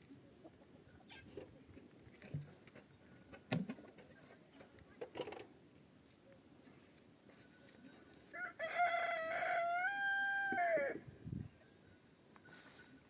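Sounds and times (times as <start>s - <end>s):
rooster crowing: 8.3s - 11.0s.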